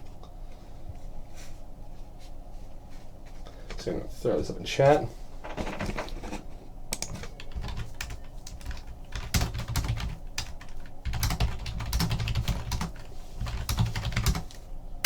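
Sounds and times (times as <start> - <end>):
computer keyboard typing: 7.0 - 14.6.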